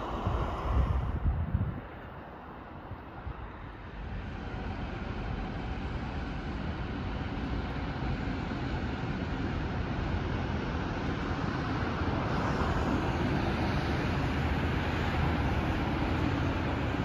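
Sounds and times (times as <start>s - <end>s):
distant freight train rumbling: 0.0s - 17.0s.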